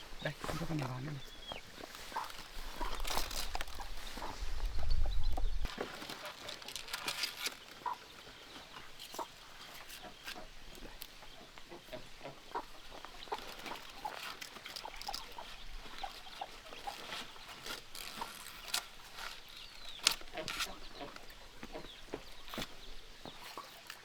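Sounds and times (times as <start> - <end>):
chickens clucking: 0.0 - 24.0
light clicks and rustles: 0.4 - 11.7, 12.6 - 24.0.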